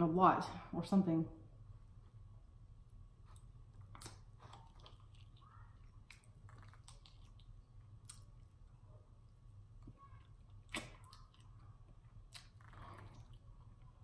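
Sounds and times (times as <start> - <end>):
chewing with wet mouth clicks: 2.9 - 8.7, 9.3 - 14.0.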